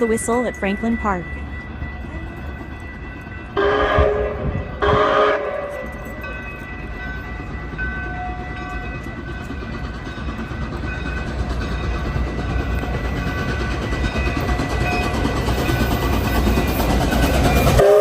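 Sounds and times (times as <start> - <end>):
train rumbling: 0.0 - 18.0
steam locomotive whistle: 3.6 - 6.0, 17.6 - 18.0.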